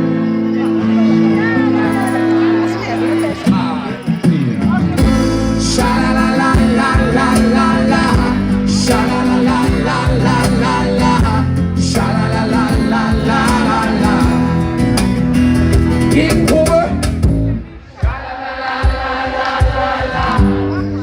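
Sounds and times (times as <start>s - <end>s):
guitar: 0.0s - 21.0s
person singing: 5.0s - 15.0s.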